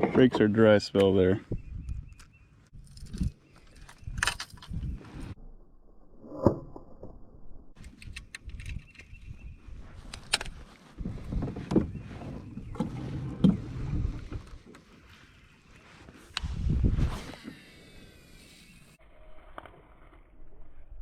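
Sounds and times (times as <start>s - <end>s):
water around boat: 10.6s - 16.6s.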